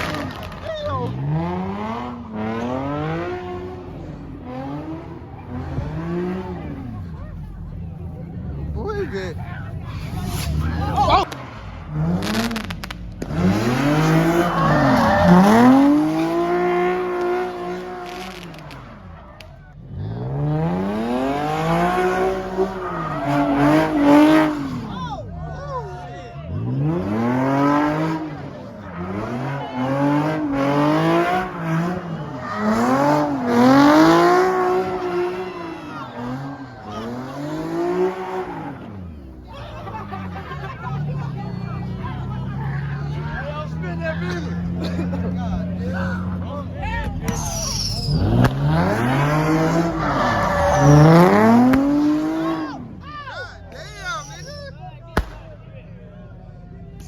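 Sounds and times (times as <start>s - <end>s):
car engine revving hard: 0.0s - 53.1s
tyres screeching: 12.2s - 18.9s, 21.0s - 25.2s, 26.8s - 40.1s, 47.1s - 55.4s.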